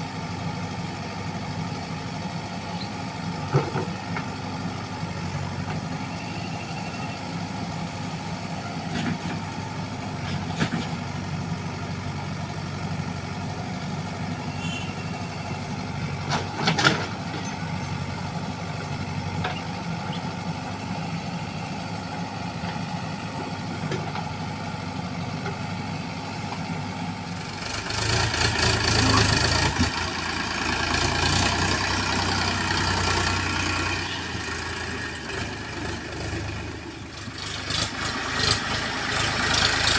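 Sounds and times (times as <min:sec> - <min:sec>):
diesel engine idling: 0:00.0 - 0:39.9
engine clatter and hiss: 0:00.9 - 0:06.0, 0:07.8 - 0:11.5, 0:21.3 - 0:39.9.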